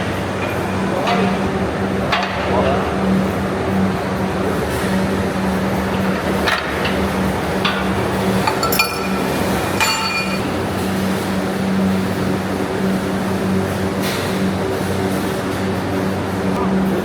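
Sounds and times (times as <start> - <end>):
factory machinery hum: 0.0 - 17.0
metallic clinks and knocks: 8.4 - 10.5.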